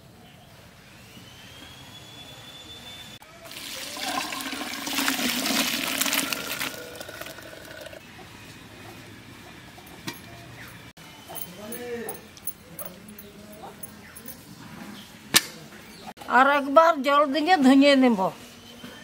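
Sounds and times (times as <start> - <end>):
water pouring out: 3.4 - 8.0.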